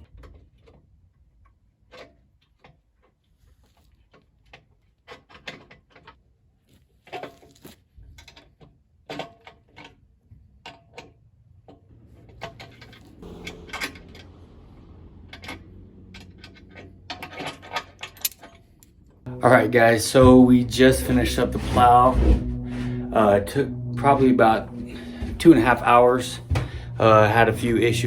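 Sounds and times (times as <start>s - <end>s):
low steady hum: 11.9s - 28.0s
hand tools and metal clinking: 16.2s - 19.0s.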